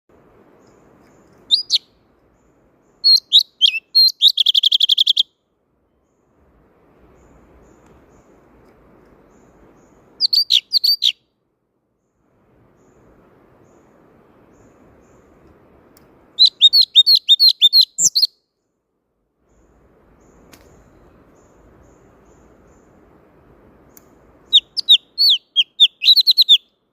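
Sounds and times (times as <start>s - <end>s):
faint background hiss: 0.1s - 26.9s
songbird whistling and trilling: 1.4s - 1.9s, 3.0s - 5.4s, 10.2s - 11.2s, 16.4s - 18.4s, 24.5s - 26.7s.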